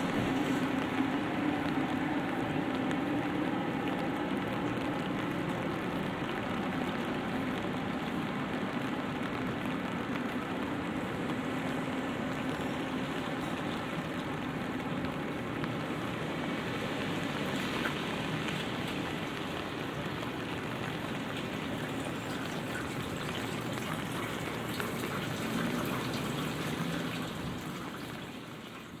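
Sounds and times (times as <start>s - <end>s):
rain pattering on umbrella: 0.0s - 29.0s.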